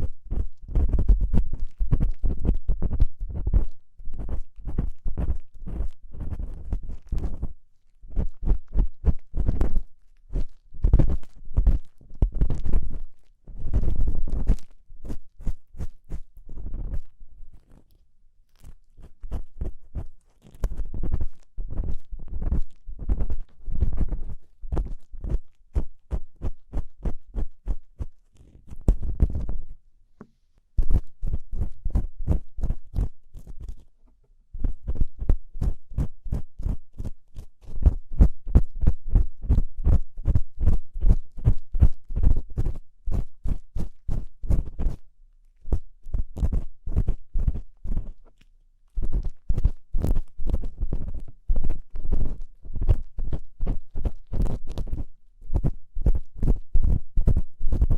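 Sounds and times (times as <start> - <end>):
tool scraping in microphone ear: 8.2 - 18.0, 27.0 - 33.9, 49.0 - 57.9.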